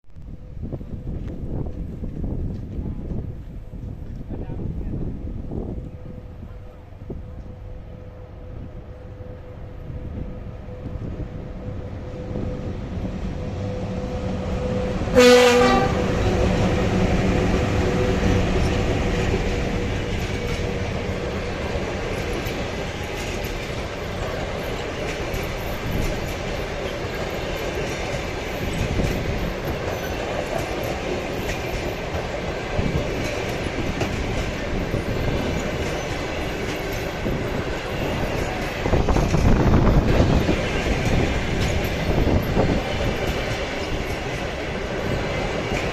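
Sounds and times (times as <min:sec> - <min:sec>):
train rolling: 0:00.2 - 0:45.9
train horn blast: 0:05.8 - 0:21.3
wheels clicking over rail joints: 0:17.8 - 0:45.9.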